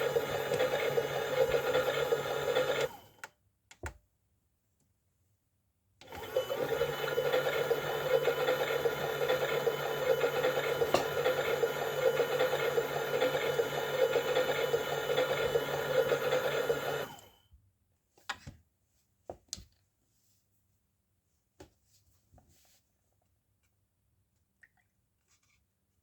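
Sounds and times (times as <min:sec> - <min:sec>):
small electric motor humming: 0:06.1 - 0:17.3.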